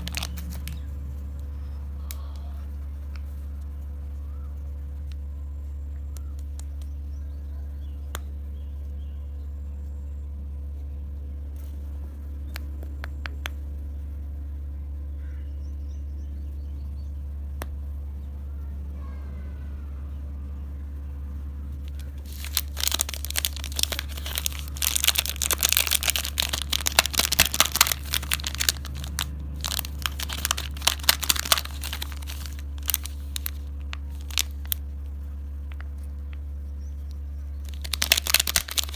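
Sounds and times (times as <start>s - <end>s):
plastic wrapper crinkling and tearing: 0.0s - 0.9s, 21.8s - 35.1s, 37.6s - 38.9s
steady low hum: 0.0s - 38.9s.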